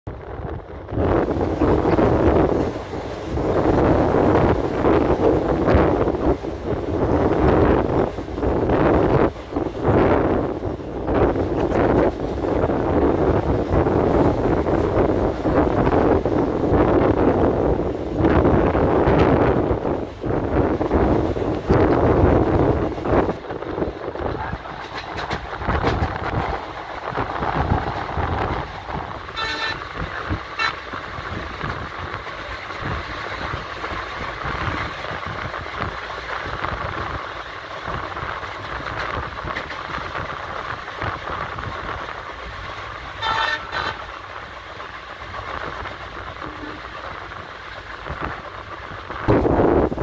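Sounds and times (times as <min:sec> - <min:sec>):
train running noise: 0:00.1 - 0:50.0
train horn toots: 0:29.3 - 0:31.0, 0:43.2 - 0:44.2.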